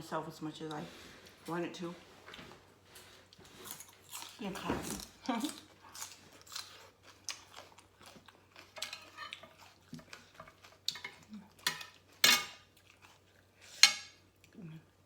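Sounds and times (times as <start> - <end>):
utensils clinking on a plate: 8.6 - 12.7, 13.7 - 14.2.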